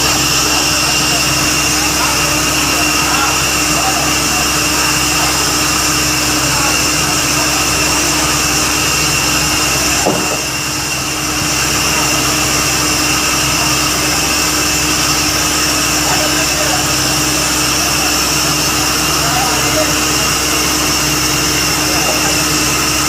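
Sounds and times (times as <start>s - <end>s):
drilling rig running: 0.0s - 23.0s.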